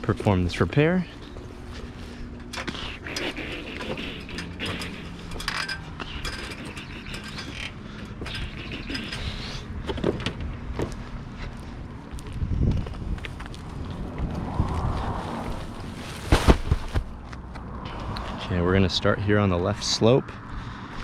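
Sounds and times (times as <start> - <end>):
low steady rumble: 0.0 - 21.0
objects clicking and rustling: 2.4 - 10.4.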